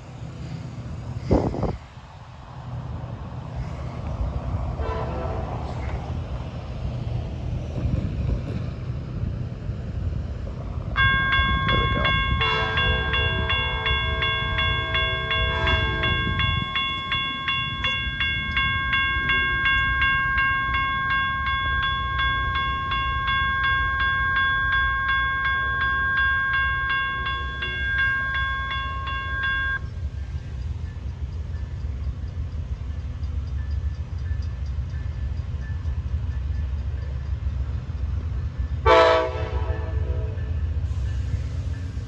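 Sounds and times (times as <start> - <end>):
diesel locomotive rumbling: 0.0 - 42.0
locomotive horn blast: 4.8 - 5.9, 11.8 - 16.6, 38.8 - 40.5
bell ringing rapidly: 11.0 - 29.8.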